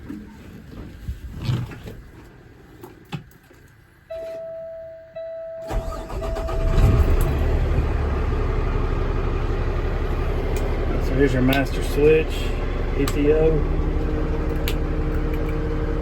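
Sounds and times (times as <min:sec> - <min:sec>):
diesel engine cranking and idling: 0:05.2 - 0:16.0.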